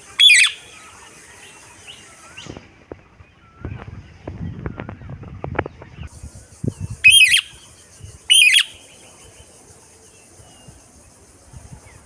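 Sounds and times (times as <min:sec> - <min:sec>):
parrot shrill calls: 0:00.0 - 0:00.8, 0:07.0 - 0:07.5, 0:08.3 - 0:08.8.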